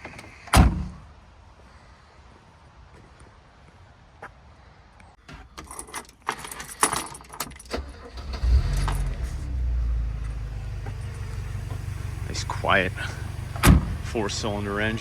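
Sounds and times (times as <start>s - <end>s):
keys jangling in ignition: 5.6s - 9.2s
car engine starting and idling: 7.5s - 15.0s.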